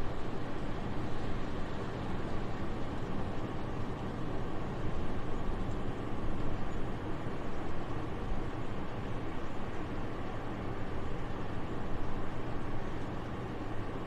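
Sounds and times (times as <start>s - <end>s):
soft steady wind: 0.0s - 14.0s.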